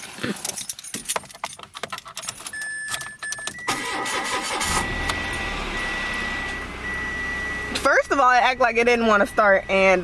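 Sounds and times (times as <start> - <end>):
car engine starting and idling: 3.2 - 10.0
high electronic warning tone: 3.4 - 10.0.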